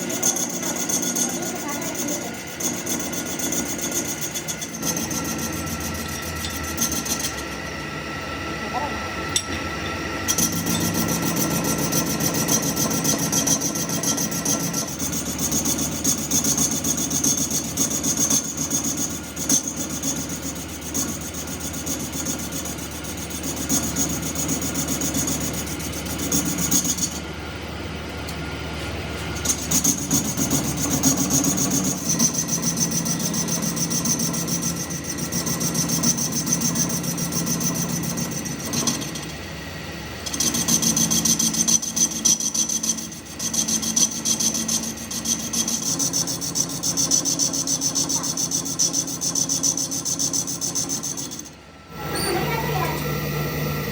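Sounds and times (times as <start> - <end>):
tool scraping metal: 0.0 - 7.8, 9.3 - 27.2, 29.2 - 39.4, 40.2 - 53.9.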